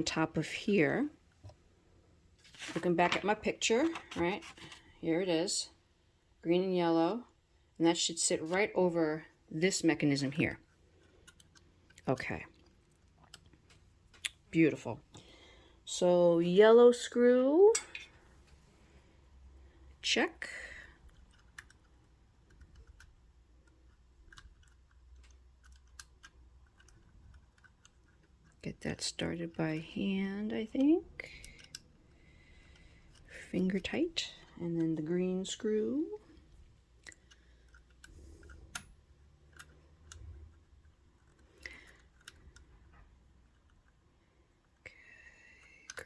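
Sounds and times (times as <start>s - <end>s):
small metal parts clicking: 11.0s - 14.3s, 20.8s - 29.6s, 30.8s - 33.9s, 37.0s - 44.0s.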